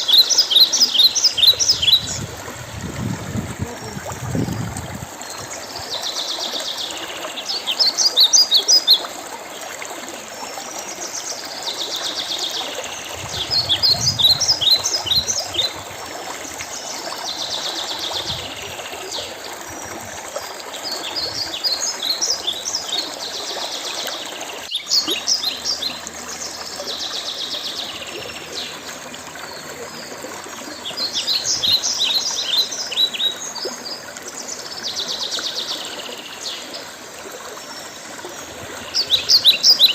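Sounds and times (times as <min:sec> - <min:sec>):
songbird singing: 0:00.0 - 0:09.1, 0:11.8 - 0:20.0, 0:24.1 - 0:36.9, 0:37.6 - 0:39.9
stream rushing: 0:00.0 - 0:26.8.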